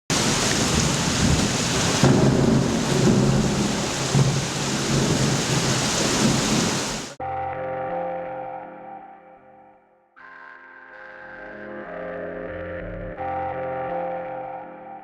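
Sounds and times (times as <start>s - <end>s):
heavy rain: 0.1s - 7.2s
rumbling thunder: 0.1s - 7.2s.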